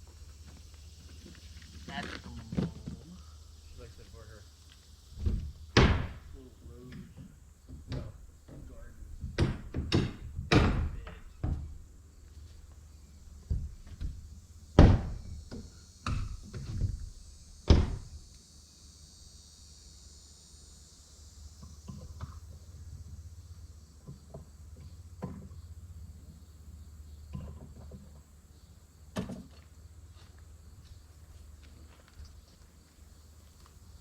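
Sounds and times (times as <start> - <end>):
wooden boards knocking and clunking: 5.2 - 6.3, 6.9 - 11.8, 13.4 - 17.1, 17.7 - 18.2.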